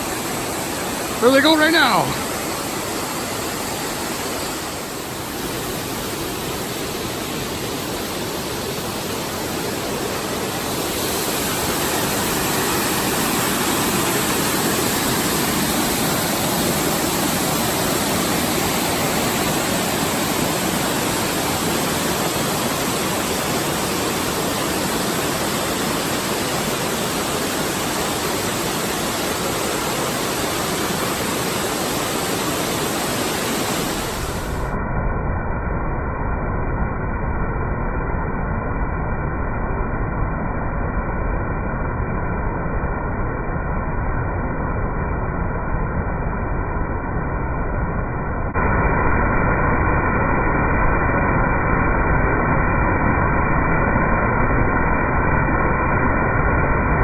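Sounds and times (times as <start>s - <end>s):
rushing water: 0.0s - 34.8s.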